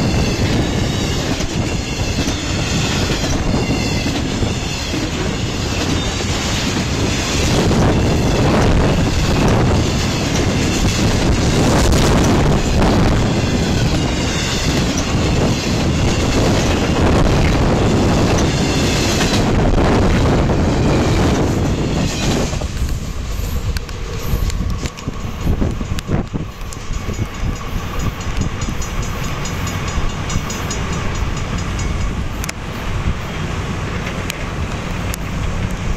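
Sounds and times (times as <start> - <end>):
freight train rushing past: 0.0 - 35.9
train wheels clicking: 0.0 - 35.9.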